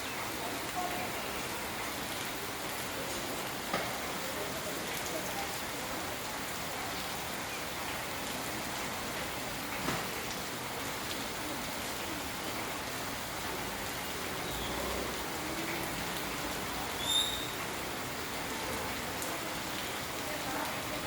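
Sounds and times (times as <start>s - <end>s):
rain pattering: 0.0s - 21.0s
sharp drip: 16.9s - 17.6s.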